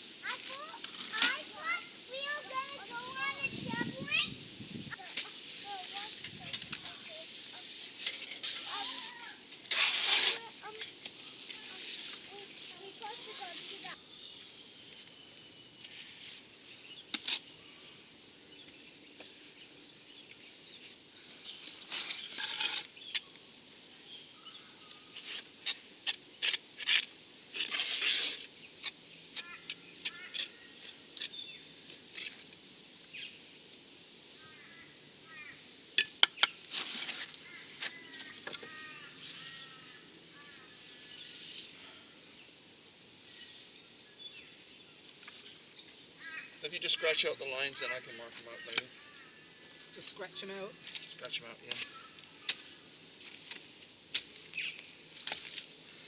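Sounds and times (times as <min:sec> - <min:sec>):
birds chirping: 0:00.0 - 0:09.4, 0:10.4 - 0:26.5, 0:28.5 - 0:32.1, 0:34.4 - 0:36.6, 0:37.4 - 0:42.6, 0:43.2 - 0:53.2
hand tools scraping cement: 0:05.2 - 0:14.0, 0:21.8 - 0:23.2, 0:25.2 - 0:31.4, 0:36.6 - 0:38.7.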